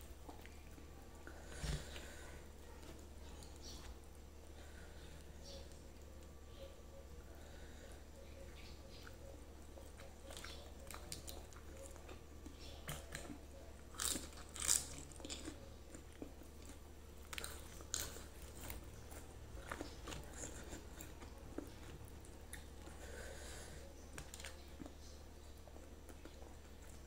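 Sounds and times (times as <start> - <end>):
person chewing with wet clicks: 0.0 - 1.0, 8.6 - 23.0, 24.1 - 27.0
crisp food crunches: 10.2 - 22.7.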